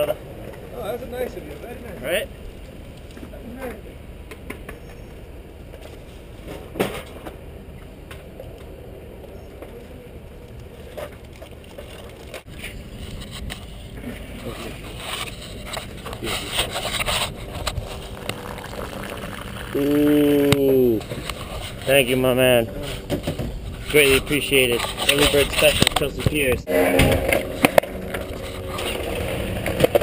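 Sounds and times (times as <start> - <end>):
skateboard scraping: 10.7 - 30.0
skateboard wheels rolling: 26.7 - 30.0.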